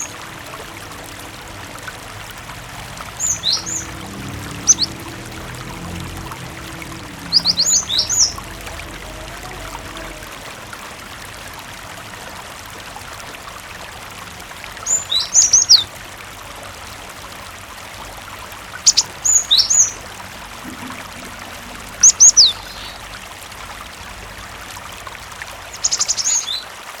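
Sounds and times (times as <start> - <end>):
running water: 0.0 - 27.0
bird singing high sweeping notes: 3.0 - 5.8, 7.2 - 8.6, 21.9 - 23.1.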